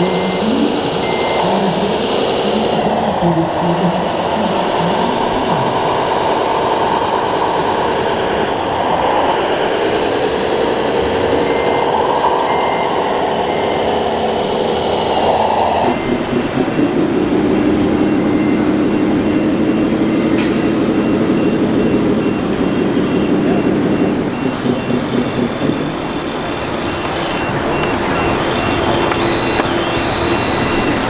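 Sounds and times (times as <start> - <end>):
faint repeated beeps: 0.0 - 8.0, 10.7 - 31.0
motors and hydraulic pumps whining: 0.0 - 31.0.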